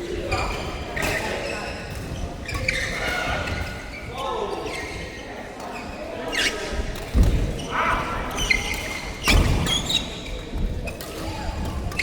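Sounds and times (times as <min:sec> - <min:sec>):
shoe squeaks on floor: 0:00.3 - 0:03.1, 0:05.8 - 0:06.7, 0:08.5 - 0:10.5.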